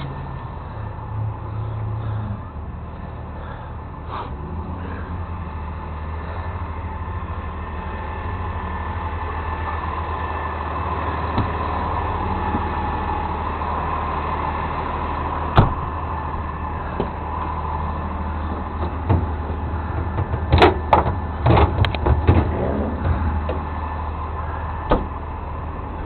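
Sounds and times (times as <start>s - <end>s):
road and cab noise: 0.0s - 26.0s
truck engine droning: 0.0s - 26.0s.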